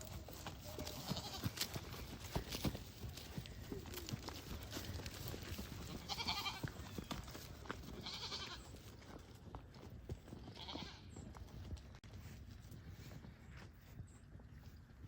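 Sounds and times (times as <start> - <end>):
goats bleating: 0.6 - 1.8, 5.9 - 7.0, 8.0 - 8.7, 10.5 - 11.1.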